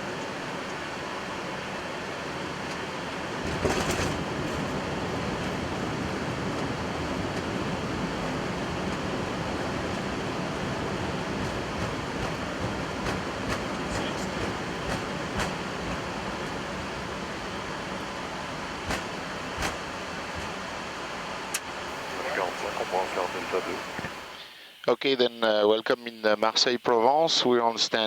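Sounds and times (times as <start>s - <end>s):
aircraft rolling on runway: 0.0s - 24.4s
steady cockpit hiss: 12.9s - 28.0s.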